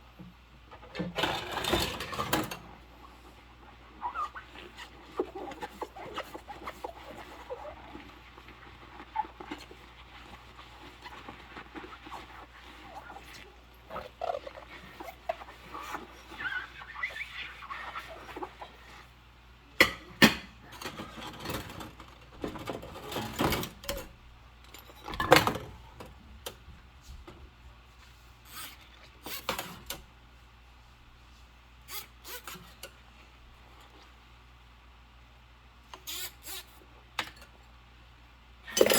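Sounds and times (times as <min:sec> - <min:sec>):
rubber gloves squeaking on dishes: 0:02.9 - 0:19.1, 0:28.4 - 0:29.8, 0:31.9 - 0:32.9, 0:36.0 - 0:36.8.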